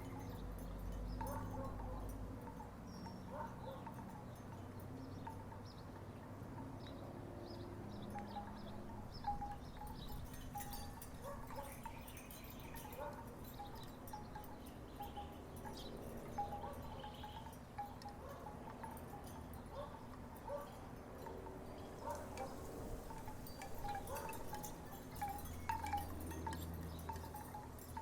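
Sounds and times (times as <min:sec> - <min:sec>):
wooden wind chimes knocking: 0:21.2 - 0:28.0.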